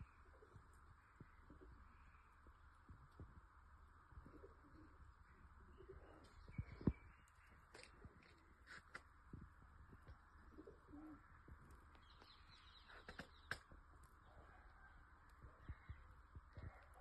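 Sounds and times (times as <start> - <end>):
birds chirping: 4.2 - 9.0, 10.1 - 17.0
bird cooing: 4.3 - 5.0, 10.5 - 11.4.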